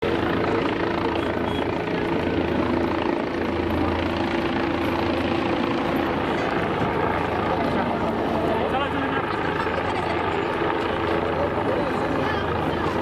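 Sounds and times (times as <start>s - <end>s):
helicopter flying overhead: 0.0s - 13.0s.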